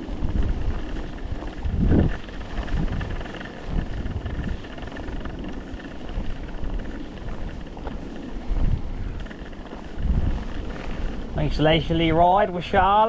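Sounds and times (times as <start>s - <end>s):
bicycle rolling noise: 0.0s - 13.0s
wind buffeting microphone: 0.0s - 13.0s.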